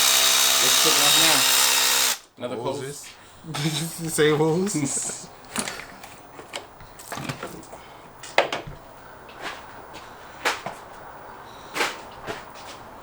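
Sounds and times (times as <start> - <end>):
clicks and knocks on car parts: 5.5 - 8.8.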